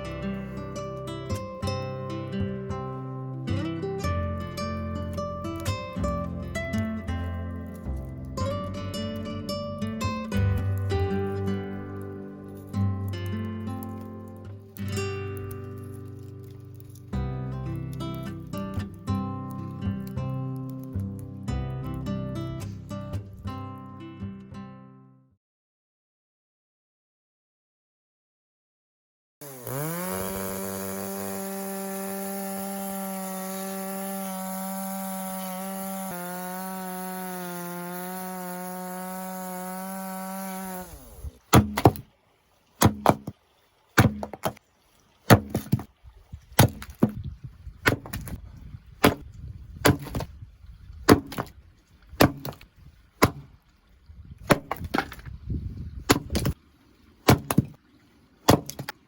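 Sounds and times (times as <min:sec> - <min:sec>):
hatchet chopping firewood: 0:13.8 - 0:14.1, 0:29.4 - 0:42.1, 0:42.8 - 0:43.4, 0:44.0 - 0:44.6, 0:45.3 - 0:45.9, 0:46.6 - 0:48.4, 0:49.0 - 0:50.4, 0:51.1 - 0:53.6, 0:54.4 - 0:55.4, 0:56.0 - 0:56.6, 0:57.2 - 0:57.8, 0:58.5 - 0:59.0
chainsaw running: 0:29.4 - 0:42.0.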